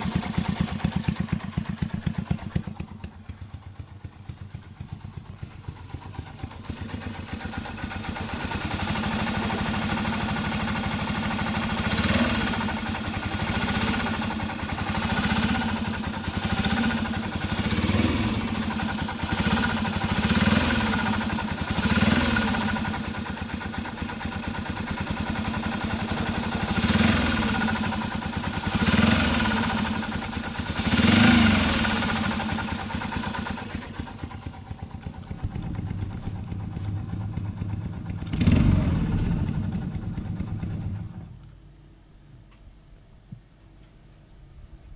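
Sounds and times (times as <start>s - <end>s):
motorcycle engine revving: 0.0s - 41.4s
small motorcycle engine idling: 0.0s - 41.7s.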